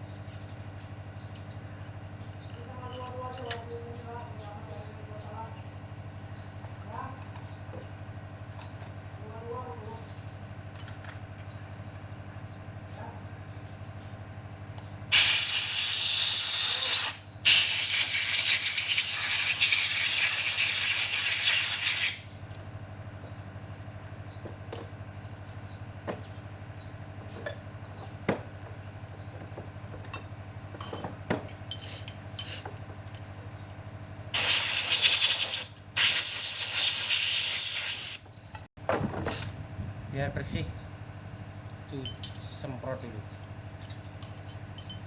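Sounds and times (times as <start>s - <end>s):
cleaning spray hissing: 15.1s - 22.2s, 34.4s - 38.2s
metal parts clicking and knocking: 43.4s - 45.0s.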